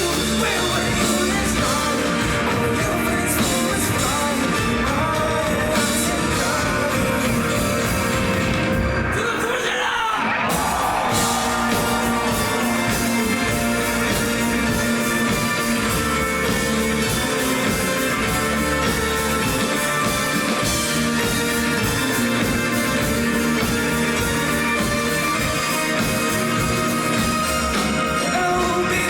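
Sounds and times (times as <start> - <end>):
drum kit beat: 0.0 - 9.1, 10.4 - 29.0
bass guitar: 0.0 - 9.2, 10.4 - 29.0
electric guitar: 0.0 - 9.2, 10.2 - 29.0.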